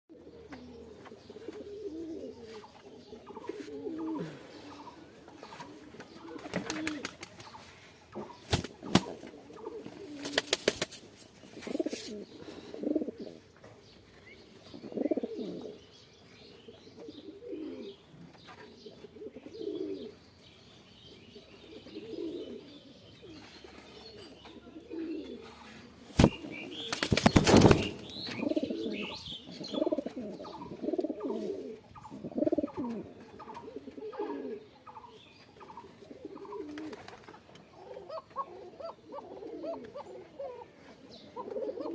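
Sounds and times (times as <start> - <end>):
pigeons cooing: 0.1 - 10.8, 11.4 - 13.5, 14.5 - 15.9, 16.6 - 20.2, 21.3 - 41.9
wings flapping: 5.6 - 7.6, 8.4 - 12.1, 26.2 - 28.1.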